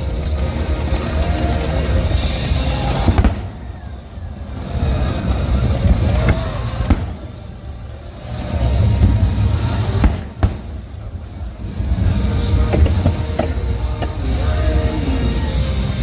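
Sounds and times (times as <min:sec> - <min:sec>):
low rumble: 0:00.0 - 0:16.0
music: 0:00.0 - 0:16.0
fireworks bangs: 0:00.2 - 0:14.8
firework whistles: 0:00.5 - 0:11.6.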